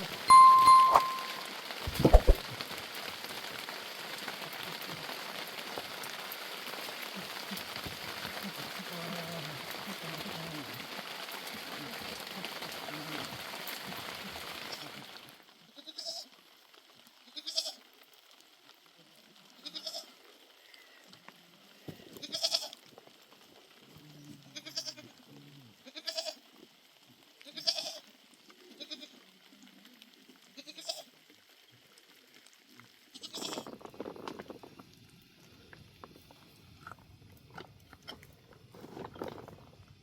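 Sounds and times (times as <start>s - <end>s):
livestock bleating: 22.2s - 22.8s, 24.5s - 25.1s, 25.8s - 26.4s, 27.4s - 28.0s.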